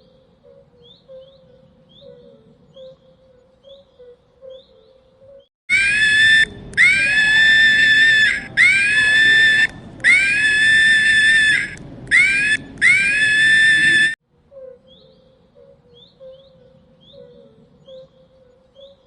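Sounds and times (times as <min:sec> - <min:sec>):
animal screaming calls: 0:05.7 - 0:14.2.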